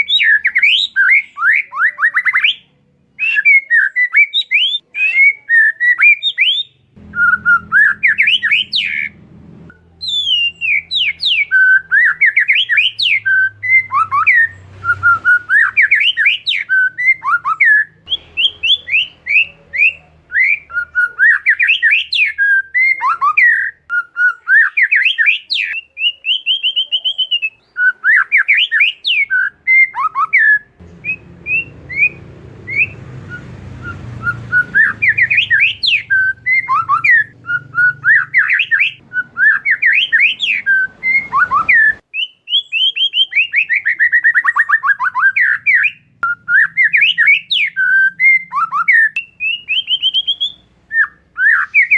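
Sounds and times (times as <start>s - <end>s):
bird singing whistled notes: 0.0s - 51.9s
faint low hum: 7.0s - 14.9s.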